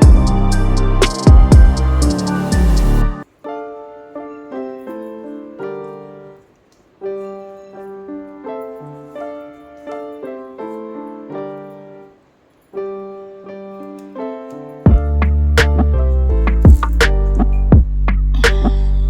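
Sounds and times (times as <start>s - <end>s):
gentle solo piano: 3.4s - 18.6s.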